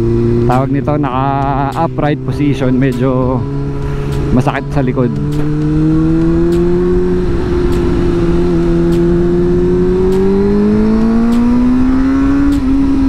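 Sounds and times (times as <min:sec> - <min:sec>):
motorcycle engine accelerating: 0:00.0 - 0:13.0
wind rush: 0:03.6 - 0:13.0.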